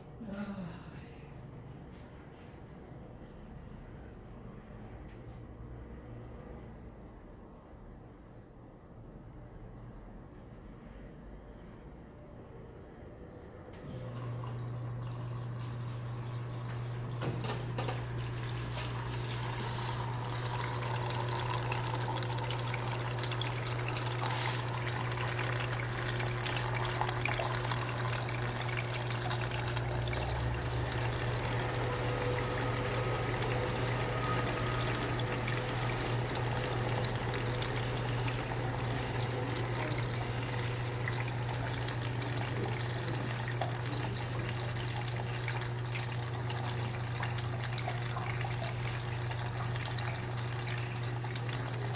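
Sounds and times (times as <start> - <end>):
water pouring into washing machine: 13.8 - 51.9.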